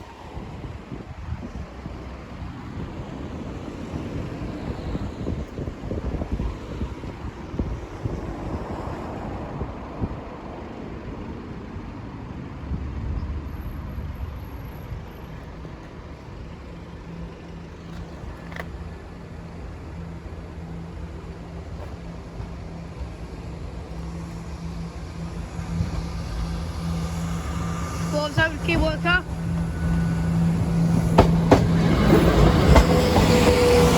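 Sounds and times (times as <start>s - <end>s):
wind rumble on microphone: 0.0s - 16.6s
motor vehicle running: 13.7s - 33.9s.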